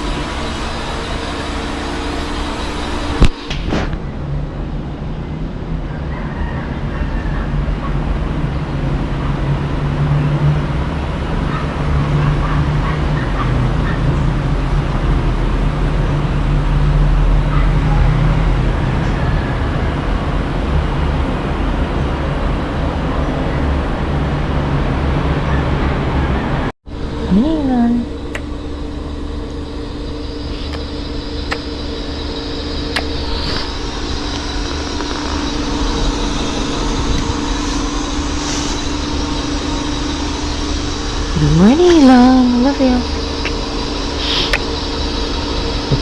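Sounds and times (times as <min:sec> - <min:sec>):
low rumbling noise: 0:00.0 - 0:06.2, 0:06.8 - 0:46.0
faint chirps: 0:28.2 - 0:46.0
sharp click: 0:30.5 - 0:30.9.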